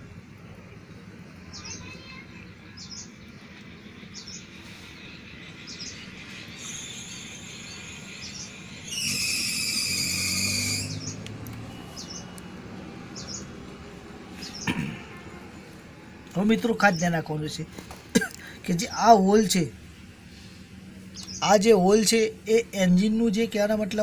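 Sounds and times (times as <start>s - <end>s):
bird chirping: 1.5s - 13.8s, 14.4s - 15.1s, 21.0s - 21.6s.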